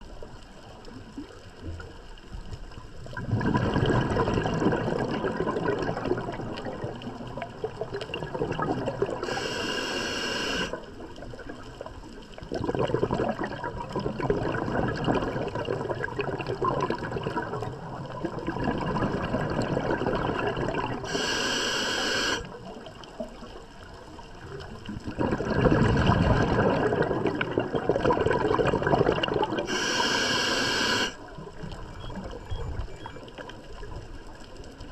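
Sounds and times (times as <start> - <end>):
bubbling exhales underwater: 3.0 - 11.4, 12.4 - 22.9, 24.4 - 33.2
hissing inhales through regulator: 9.2 - 10.8, 21.0 - 22.5, 29.6 - 31.2.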